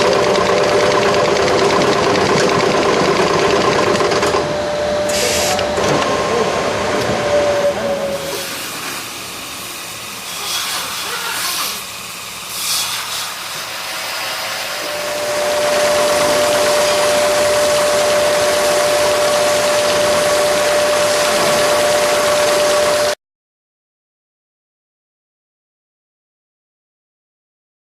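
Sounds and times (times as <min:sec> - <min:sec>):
stitching machine running: 0:00.0 - 0:06.1, 0:13.9 - 0:23.2
short air hisses: 0:05.1 - 0:05.6.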